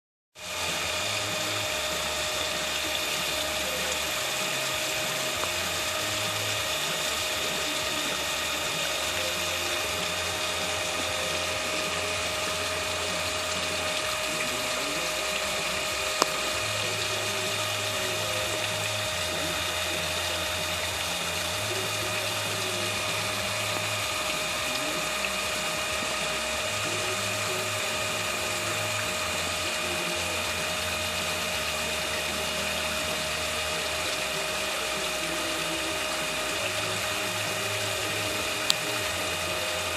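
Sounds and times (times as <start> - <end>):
small motor whining: 0.4 - 39.9.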